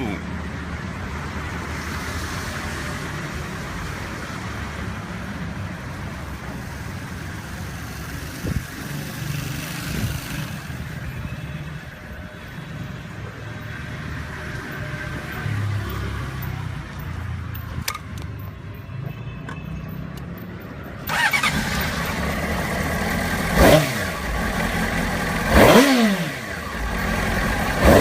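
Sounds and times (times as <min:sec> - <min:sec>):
motorcycle engine running: 0:21.1 - 0:28.0.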